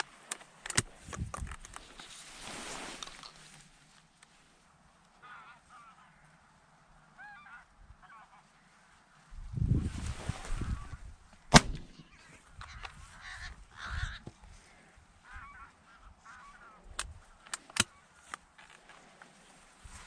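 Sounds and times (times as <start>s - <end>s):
sharp cracks: 11.4s - 12.9s
shotgun shot: 11.5s - 12.0s
harsh cawing calls: 12.7s - 14.3s.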